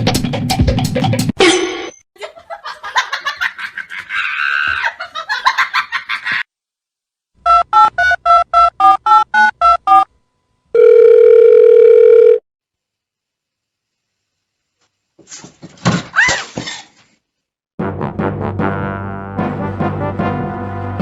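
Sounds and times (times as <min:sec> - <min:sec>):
steady phone tone: 0:10.7 - 0:12.4
telephone keypad tones: 0:10.8 - 0:12.4.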